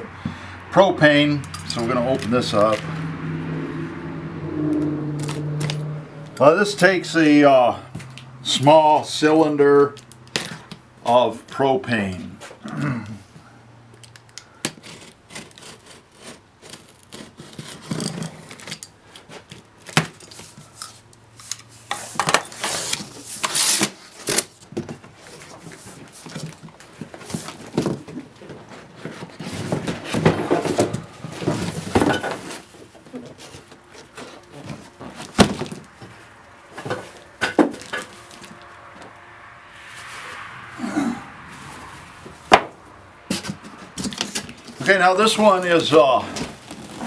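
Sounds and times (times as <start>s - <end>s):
cardboard box scraping and rustling: 14.8s - 20.7s, 21.7s - 38.7s, 43.3s - 47.0s.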